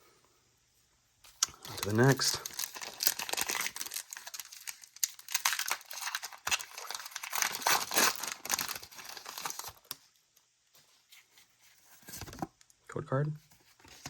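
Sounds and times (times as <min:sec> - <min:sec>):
foil wrapper crinkling: 0:01.3 - 0:10.0.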